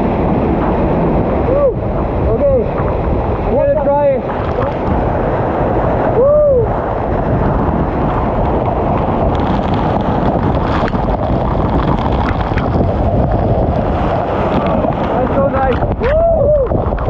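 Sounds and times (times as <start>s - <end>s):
waterfall rushing: 0.0s - 17.0s
person whooping: 1.5s - 1.8s, 6.1s - 6.8s, 16.0s - 16.8s.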